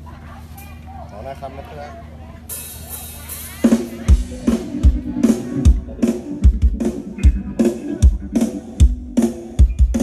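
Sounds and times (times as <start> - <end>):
live band music: 3.6 - 10.0.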